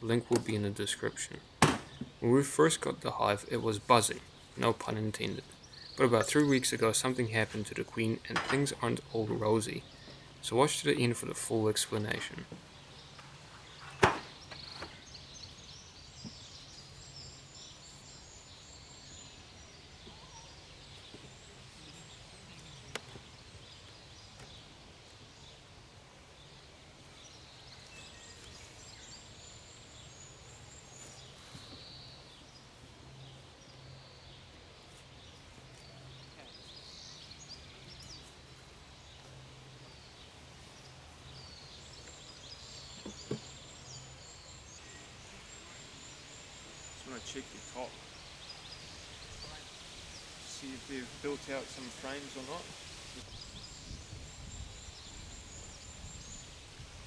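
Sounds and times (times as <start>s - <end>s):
small birds chirping: 0.0s - 57.0s
sharp knock: 1.6s - 2.1s, 14.0s - 14.3s.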